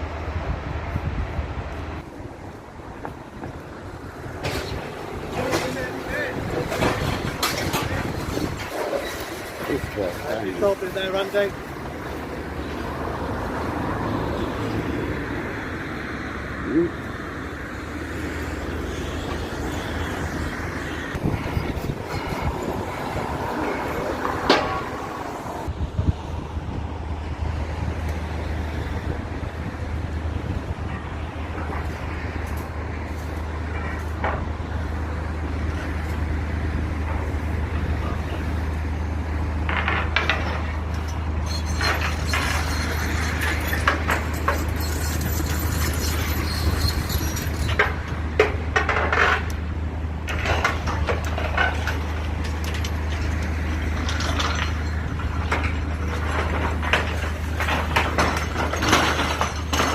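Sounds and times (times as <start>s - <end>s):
heavy engine running: 0.0s - 59.9s
debris crunching and clattering: 4.3s - 11.5s, 39.6s - 59.9s.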